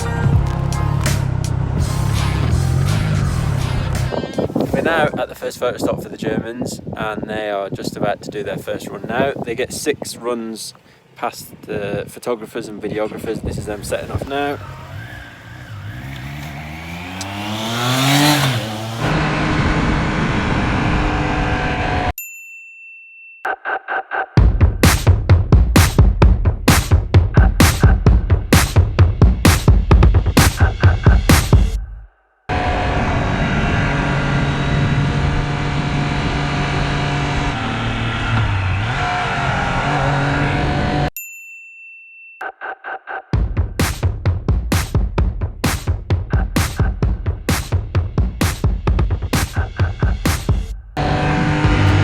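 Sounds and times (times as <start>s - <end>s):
motorcycle engines accelerating: 0.0s - 4.1s, 13.1s - 22.1s, 32.5s - 41.1s, 49.4s - 52.0s
motorcycle engine running: 14.2s - 20.0s, 43.4s - 52.0s.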